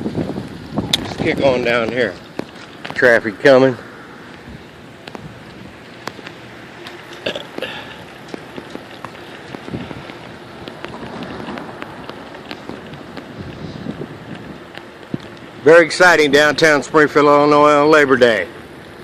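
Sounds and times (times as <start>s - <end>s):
bicycle tyre and wind hiss: 0.0s - 19.0s.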